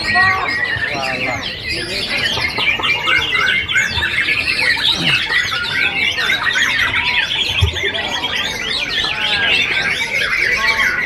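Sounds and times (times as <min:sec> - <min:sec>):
songbirds chorus singing: 0:00.0 - 0:11.0.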